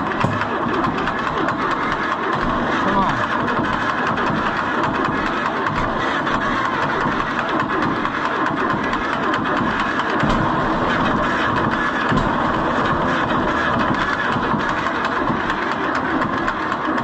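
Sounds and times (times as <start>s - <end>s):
electric starter cranking engine: 0.0s - 17.0s.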